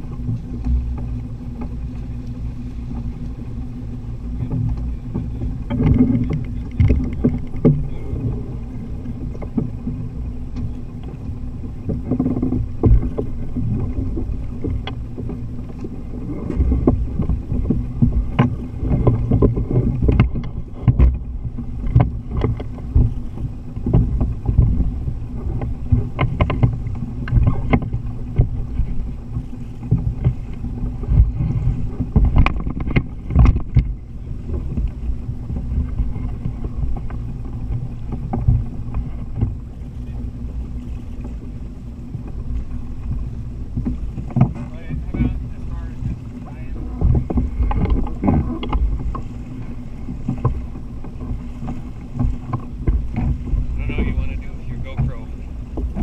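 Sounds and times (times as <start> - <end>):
rumble of wind and water: 0.0 - 56.0
steady low hum: 0.0 - 56.0
knocks and clicks: 31.1 - 34.0.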